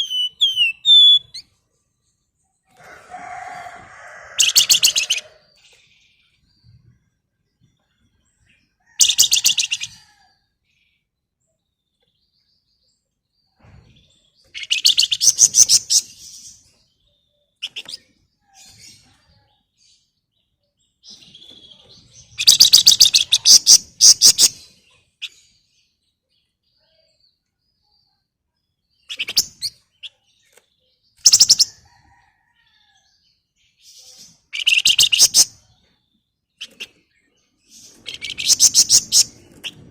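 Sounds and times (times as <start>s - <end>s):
bird chip calls: 0.0s - 1.4s, 34.5s - 35.6s, 37.9s - 39.9s
songbird chattering song: 0.0s - 2.7s, 10.7s - 39.9s.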